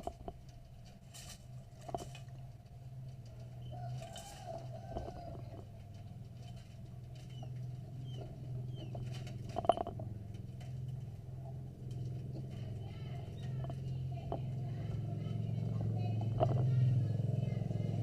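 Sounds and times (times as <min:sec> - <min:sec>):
steady low hum: 0:00.0 - 0:18.0
faint bird chirps: 0:07.2 - 0:09.1.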